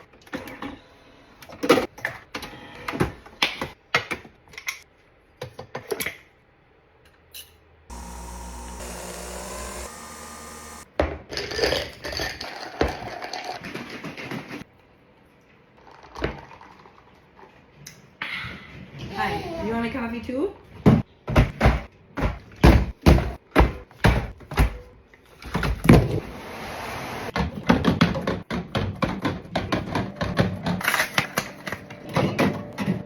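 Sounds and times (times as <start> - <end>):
coffee machine hissing: 7.9 - 10.9
coffee machine motor running: 7.9 - 10.9.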